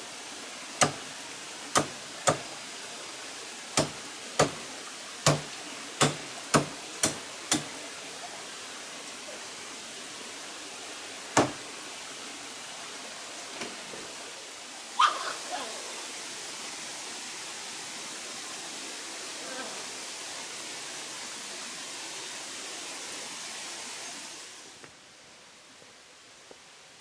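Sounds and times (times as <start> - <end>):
sharp knocks or chops: 0.8 - 1.1, 1.8 - 2.5, 3.8 - 4.6, 5.3 - 7.8, 11.4 - 11.6.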